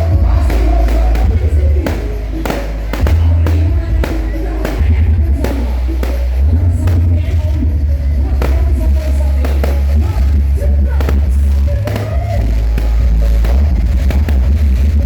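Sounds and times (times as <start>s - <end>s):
loud bass-heavy music: 0.0s - 15.0s
sharp percussive hits: 0.4s - 7.3s.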